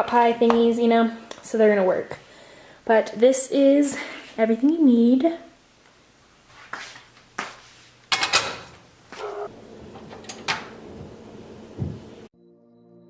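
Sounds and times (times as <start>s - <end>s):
items knocking on a table: 11.8s - 12.1s.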